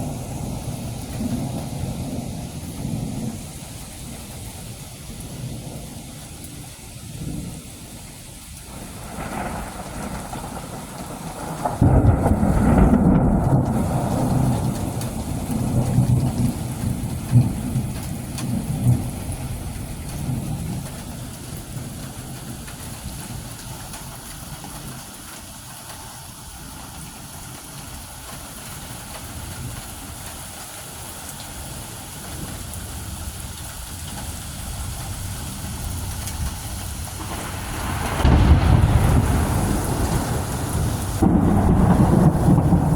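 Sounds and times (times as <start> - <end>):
thunder rolling: 0.0 - 6.2, 8.7 - 23.4, 32.3 - 42.9
steady rain: 0.0 - 42.9.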